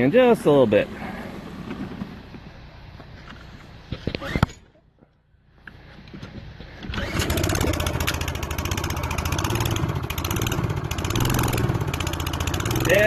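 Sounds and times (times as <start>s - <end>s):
lawn mower engine starting: 6.8s - 13.0s.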